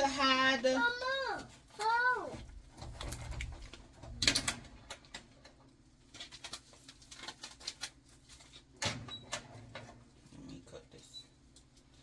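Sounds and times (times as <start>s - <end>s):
packet rustling: 6.0s - 8.8s.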